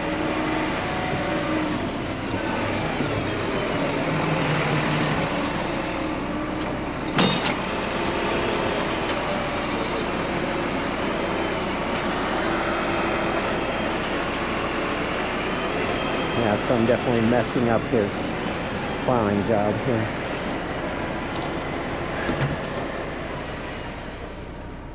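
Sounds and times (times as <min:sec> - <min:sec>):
truck engine running: 0:00.0 - 0:24.9
sharp metallic clank: 0:07.2 - 0:07.6.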